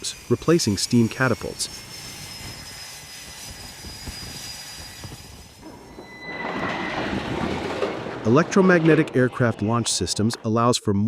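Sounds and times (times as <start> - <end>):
jet turbine whine: 0.0 - 8.1.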